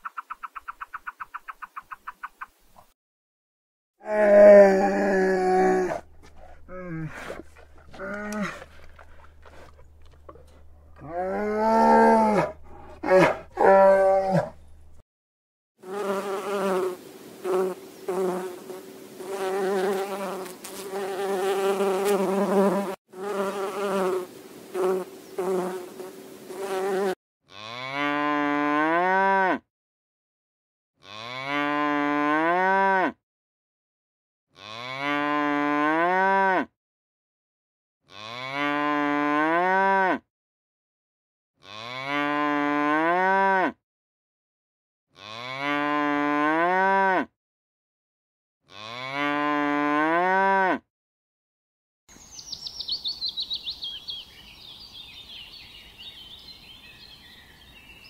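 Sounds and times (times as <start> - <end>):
cow mooing: 4.0 - 14.8, 27.5 - 29.6, 31.0 - 33.2, 34.6 - 36.7, 38.1 - 40.2, 41.6 - 43.8, 45.2 - 47.3, 48.7 - 50.8
bee buzzing: 15.8 - 27.2.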